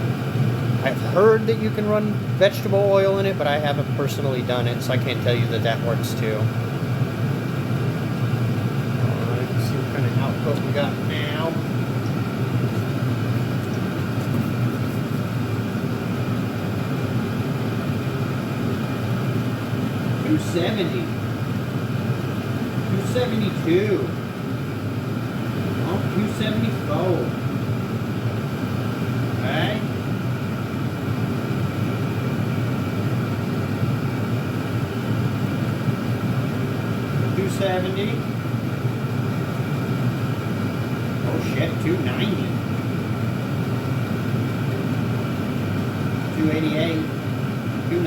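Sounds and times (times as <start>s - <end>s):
air heaters humming: 0.0s - 48.0s.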